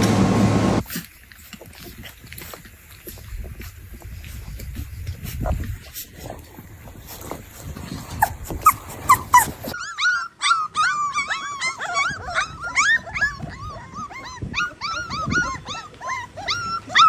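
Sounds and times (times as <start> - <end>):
puppies whimpering and yipping: 7.9 - 17.0.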